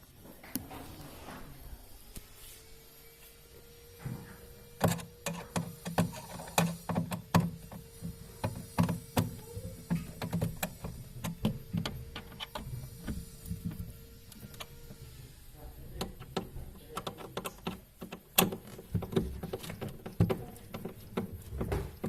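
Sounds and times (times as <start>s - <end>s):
faint steady hum: 0.0s - 22.0s
hands clicking and knocking parts: 4.8s - 14.7s, 16.0s - 22.0s.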